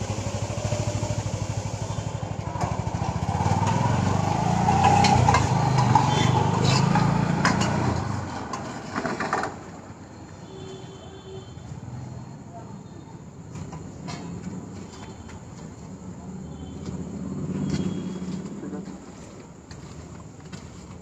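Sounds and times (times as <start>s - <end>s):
small engine puttering: 0.0s - 9.8s.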